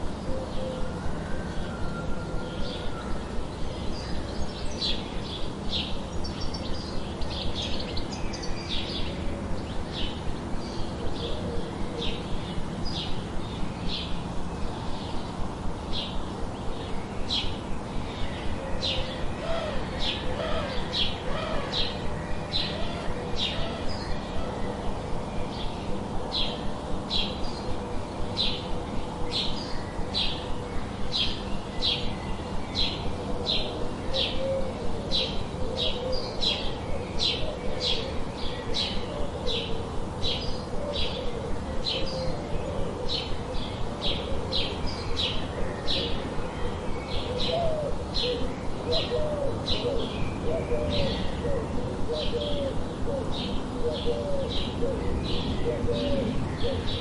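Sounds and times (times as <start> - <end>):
songbird chirping: 0.0 - 57.0
dove cooing: 0.2 - 3.0, 11.0 - 12.2, 18.5 - 25.0, 33.2 - 57.0.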